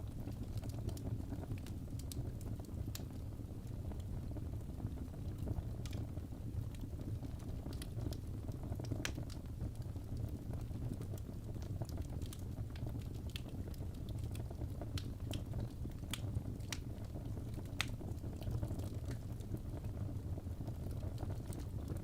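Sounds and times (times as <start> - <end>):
fire roaring: 0.0 - 22.0
logs crackling and popping: 0.0 - 22.0.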